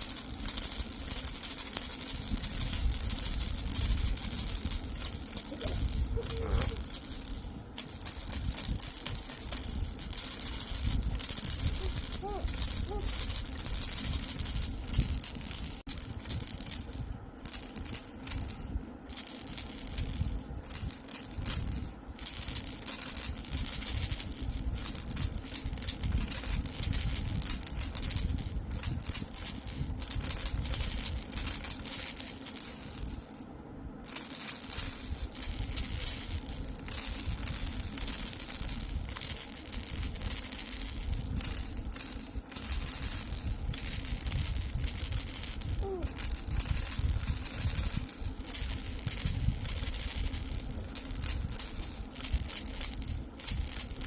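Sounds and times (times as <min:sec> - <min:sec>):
baby rattle shaken: 0:00.0 - 0:33.4, 0:34.0 - 0:54.0.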